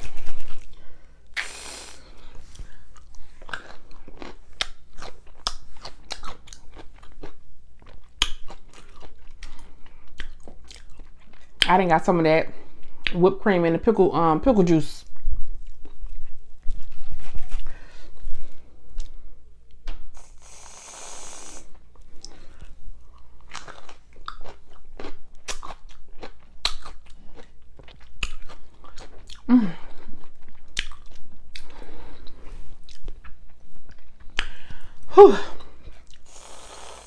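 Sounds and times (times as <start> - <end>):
pickle crunching and chewing: 2.9 - 11.6, 21.7 - 31.8
person vocalizing: 29.4 - 29.9, 35.1 - 35.6.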